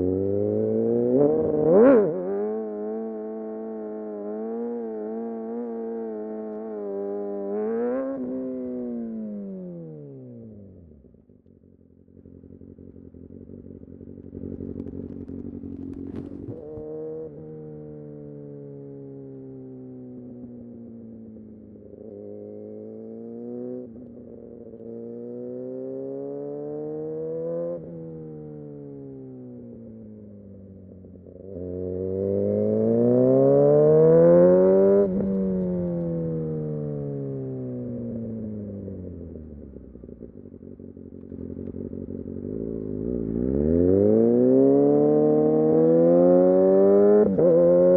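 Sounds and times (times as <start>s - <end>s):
motorcycle engine accelerating: 0.0s - 47.9s
motorcycle engine revs falling: 12.4s - 17.5s, 32.0s - 47.9s.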